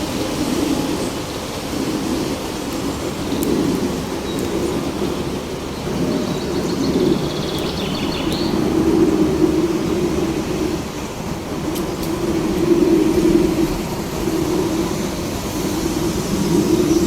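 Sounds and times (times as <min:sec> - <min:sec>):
wind blowing: 0:00.0 - 0:17.0
bird trilling: 0:05.0 - 0:08.8.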